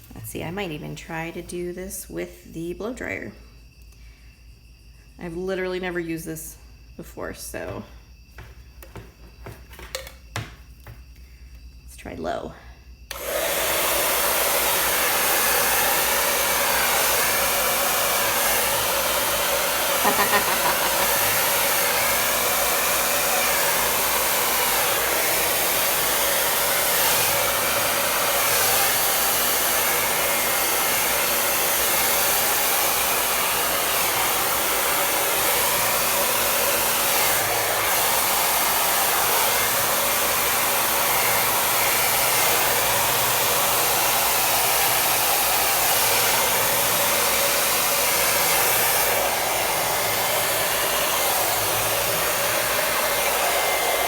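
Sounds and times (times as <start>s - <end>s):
hair dryer blowing: 13.1s - 54.0s.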